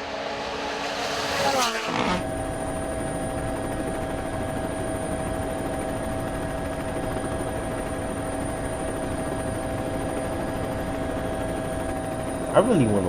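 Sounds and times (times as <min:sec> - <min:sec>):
engine drone: 0:00.0 - 0:04.1.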